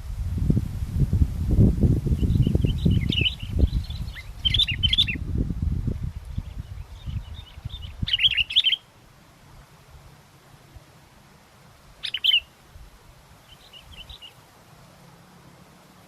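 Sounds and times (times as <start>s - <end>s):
wind buffeting microphone: 0.0s - 8.8s
bird chirping calls: 2.1s - 5.2s, 5.9s - 8.9s, 12.0s - 12.6s, 13.4s - 14.5s.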